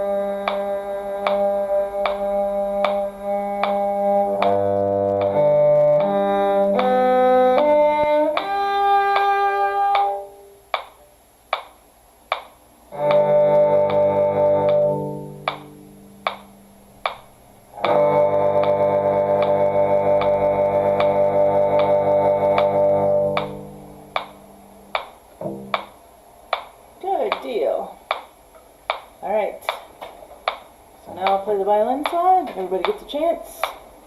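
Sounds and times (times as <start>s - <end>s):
cello playing slow melody: 0.0s - 10.4s, 12.9s - 15.6s, 17.8s - 23.8s
metronome clicking: 0.0s - 33.9s.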